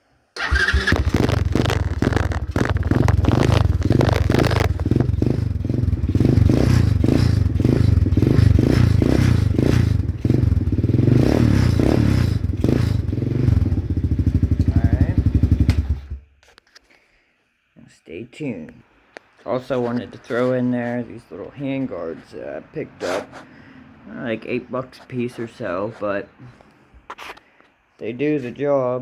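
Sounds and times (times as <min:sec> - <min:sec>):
rattle: 0:00.4 - 0:10.6
quad engine revving: 0:00.4 - 0:16.2.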